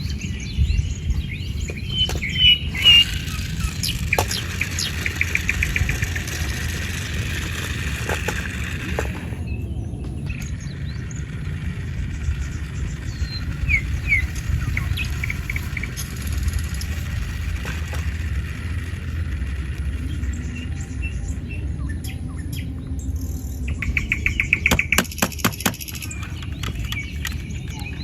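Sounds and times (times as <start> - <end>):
birds chirping: 0.0 - 28.0
steady low rumble: 0.0 - 28.0.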